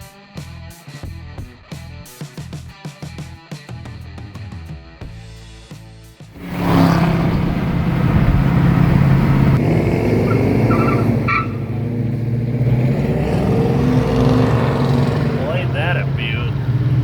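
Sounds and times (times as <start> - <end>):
car engine droning: 6.4 - 17.0.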